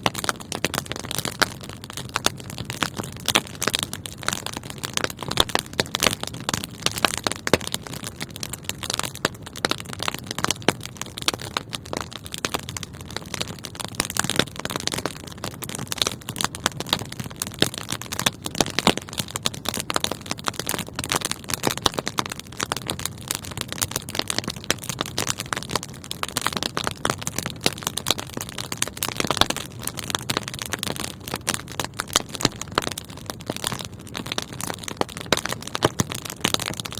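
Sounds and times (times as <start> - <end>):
wood fire crackling and popping: 0.0 - 36.9.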